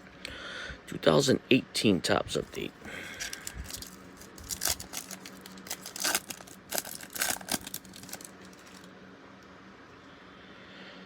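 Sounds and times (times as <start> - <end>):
foil wrapper crinkling and tearing: 2.5 - 8.9.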